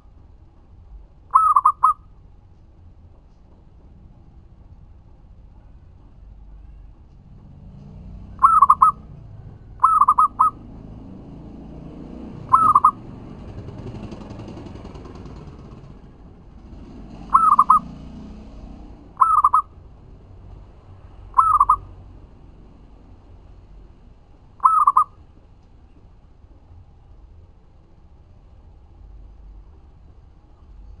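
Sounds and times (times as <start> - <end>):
low background rumble: 0.0 - 31.0
dove cooing: 1.3 - 2.0, 8.3 - 9.1, 9.8 - 10.8, 12.3 - 14.6, 17.2 - 18.3, 19.1 - 19.7, 21.3 - 21.9, 24.6 - 25.1.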